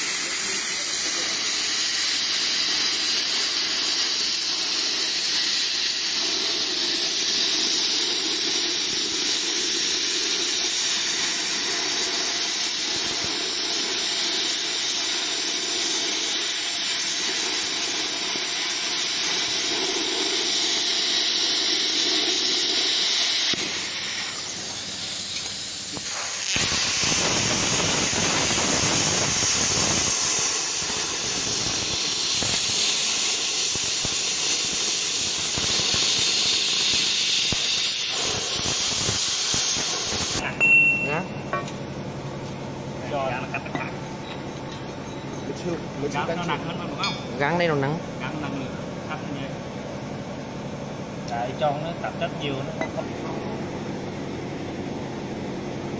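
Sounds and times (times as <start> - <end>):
plasma cutter hissing: 0.0 - 40.6.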